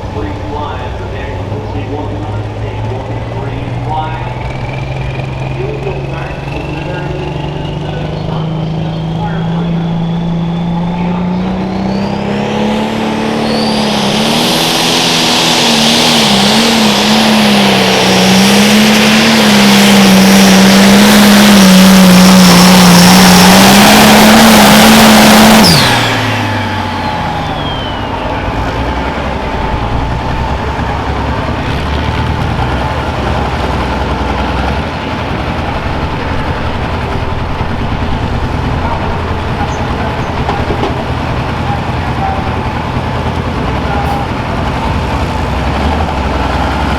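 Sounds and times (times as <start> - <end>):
diesel tractor engine at full throttle: 0.0 - 46.9
turbo whistle: 9.2 - 12.4, 22.1 - 28.6.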